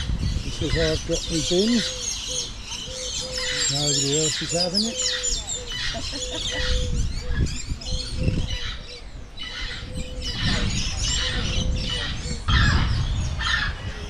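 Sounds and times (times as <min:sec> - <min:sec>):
birds chirping and trilling: 0:00.0 - 0:14.0.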